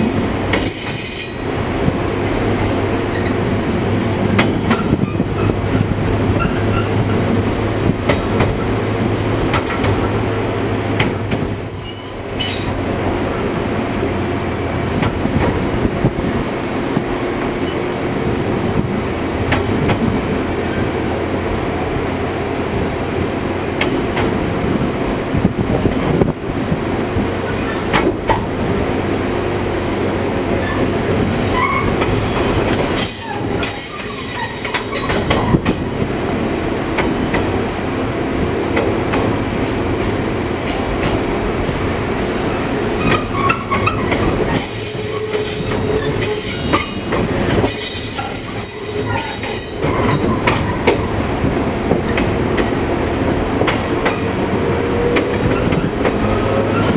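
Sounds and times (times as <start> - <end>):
rail joint clicks: 0.0 - 21.0, 22.6 - 56.9
wheels squealing: 10.8 - 15.5, 30.5 - 35.6, 42.2 - 51.0
wheel-on-rail noise: 27.2 - 37.6.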